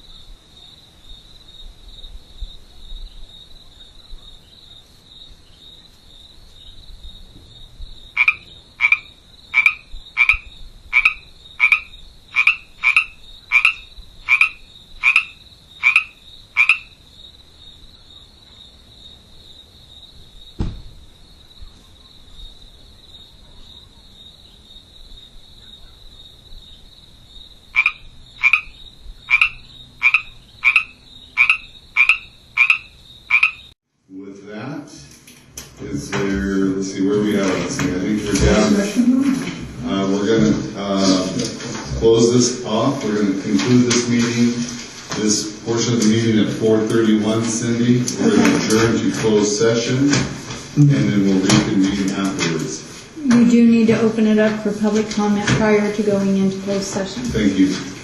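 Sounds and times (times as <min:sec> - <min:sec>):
frog croaking: 0:00.0 - 0:33.8
knock: 0:20.6 - 0:20.9.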